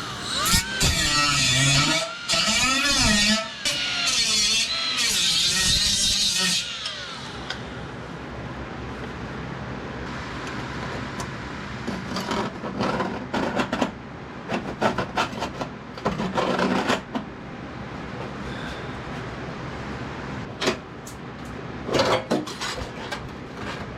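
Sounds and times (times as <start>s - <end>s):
power tool winding down: 0.0s - 7.5s.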